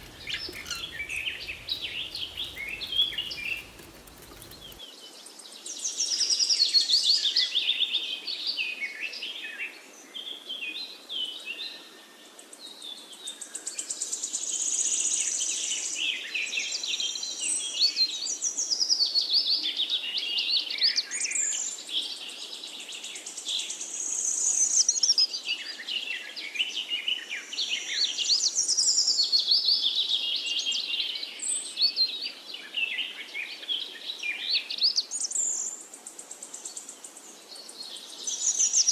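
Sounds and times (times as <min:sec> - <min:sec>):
many birds chirping: 0:00.0 - 0:04.8.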